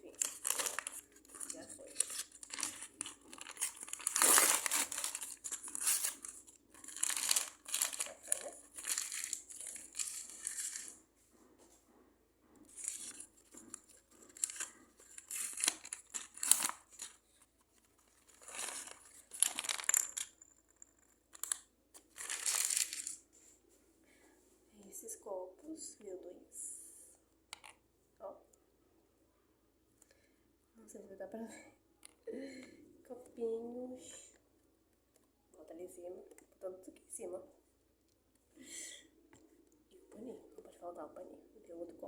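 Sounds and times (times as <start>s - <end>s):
plastic packaging crinkling and tearing: 0.0s - 11.0s, 12.7s - 23.2s.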